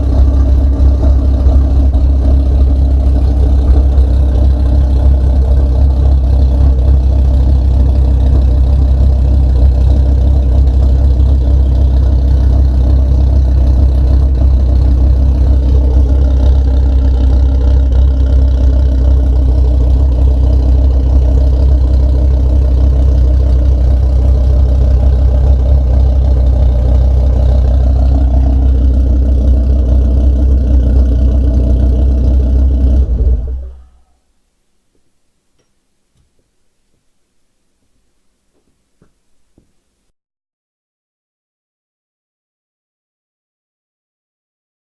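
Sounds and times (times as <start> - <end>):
engine idling: 0.0 - 34.2.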